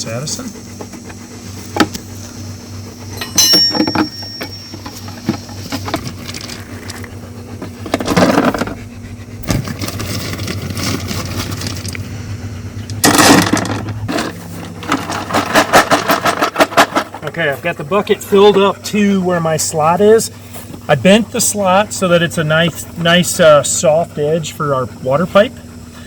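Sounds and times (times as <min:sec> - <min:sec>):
low engine hum: 0:00.0 - 0:15.6.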